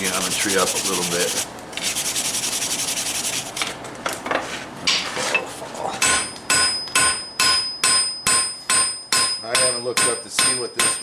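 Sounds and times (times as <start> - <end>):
hammer striking steel on anvil: 6.0 - 11.0.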